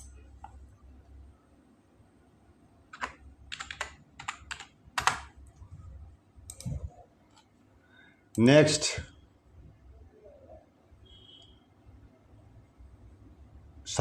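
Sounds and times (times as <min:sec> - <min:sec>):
keyboard keystrokes: 0:02.9 - 0:05.3.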